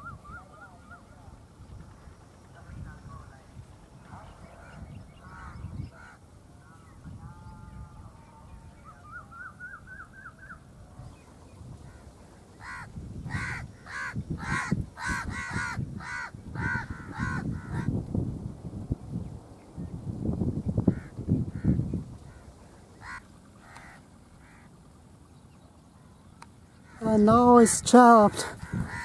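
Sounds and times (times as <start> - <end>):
harsh bird calls: 4.0 - 18.0, 20.6 - 29.0.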